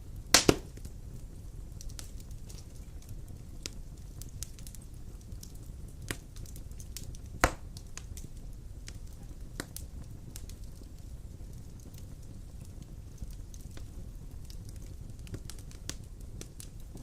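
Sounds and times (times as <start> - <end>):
wood fire crackling: 0.0 - 17.0
loud fire pop: 0.3 - 0.9, 7.4 - 7.7.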